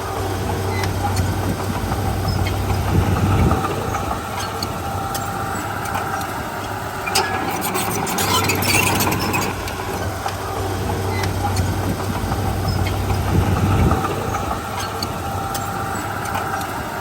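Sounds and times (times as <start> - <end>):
diesel machinery engine running: 0.0 - 17.0
metallic clanks and rattles: 7.0 - 15.2.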